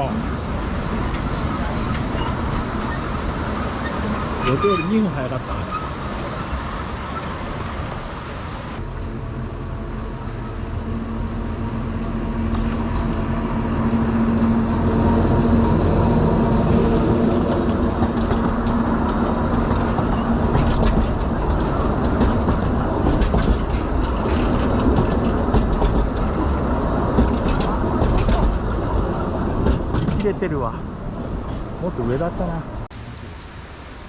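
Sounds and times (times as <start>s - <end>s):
diesel train droning: 0.0s - 32.9s
wheels clicking over rail joints: 16.6s - 30.6s.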